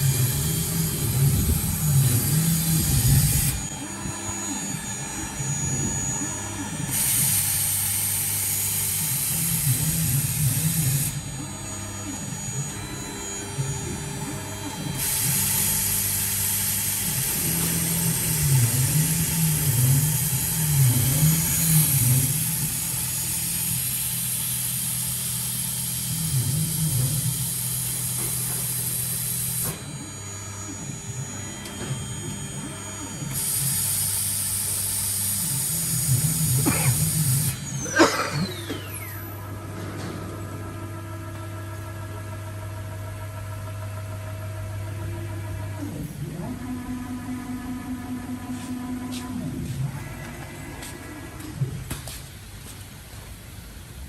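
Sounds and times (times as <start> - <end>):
spindle whine slowing: 0.0 - 23.1, 35.5 - 53.3
machine motor hum: 0.0 - 54.0.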